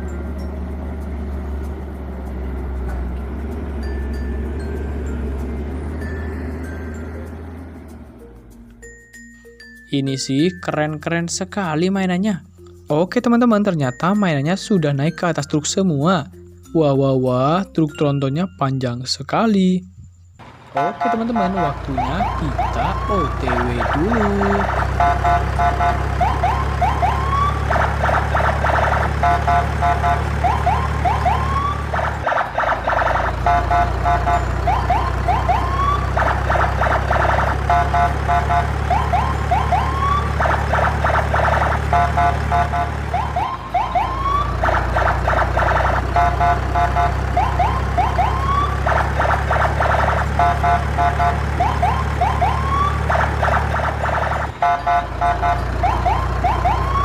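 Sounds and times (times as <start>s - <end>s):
pulsed alarm beeps: 20.1s - 57.0s
electronic siren whoops and warbles: 20.8s - 57.0s.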